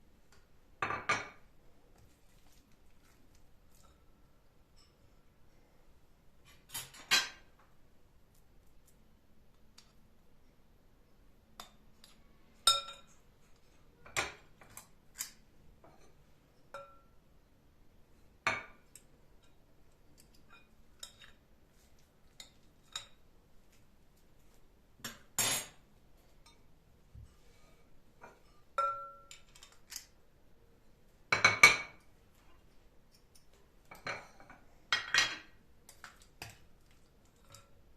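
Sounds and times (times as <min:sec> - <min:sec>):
dishes and cutlery clinking: 0:06.4 - 0:07.6, 0:11.6 - 0:17.2, 0:20.2 - 0:21.5, 0:22.3 - 0:23.2, 0:28.2 - 0:30.2, 0:31.3 - 0:32.1, 0:33.1 - 0:37.8.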